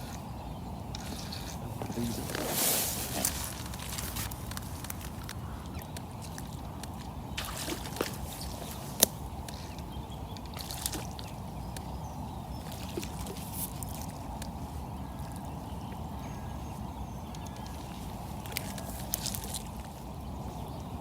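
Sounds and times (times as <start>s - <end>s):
small splashes: 1.0s - 16.0s
faint clicks: 7.8s - 12.0s, 17.3s - 19.8s.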